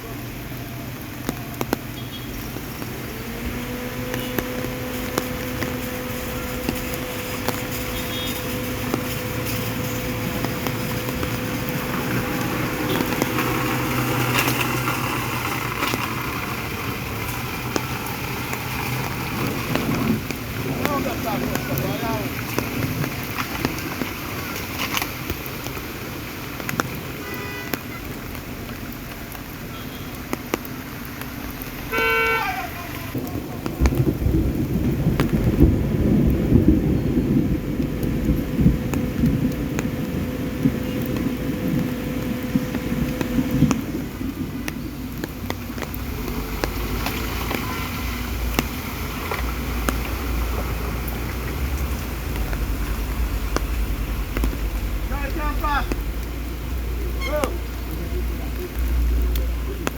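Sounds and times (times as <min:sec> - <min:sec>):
vehicle engine running: 0:00.0 - 0:26.7, 0:28.0 - 0:59.9
heavy rain: 0:00.0 - 0:59.9
car horn: 0:02.0 - 0:02.4, 0:04.0 - 0:04.9, 0:06.3 - 0:10.2, 0:11.6 - 0:14.5, 0:27.2 - 0:28.1, 0:29.7 - 0:30.2, 0:31.9 - 0:33.2, 0:47.4 - 0:48.2, 0:57.2 - 0:57.6.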